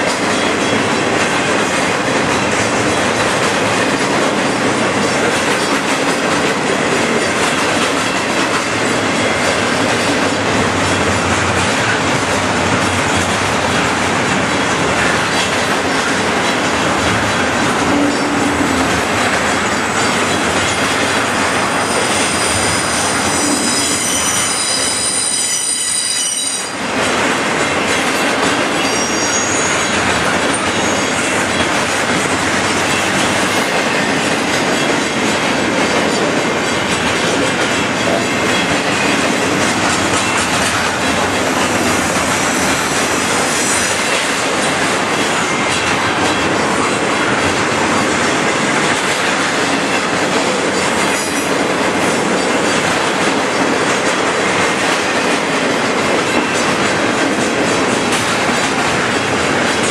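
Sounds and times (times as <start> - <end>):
freight train wheels rumbling: 0.0 - 59.9
high wheel squeal: 21.7 - 26.8, 28.8 - 30.0, 30.6 - 31.2.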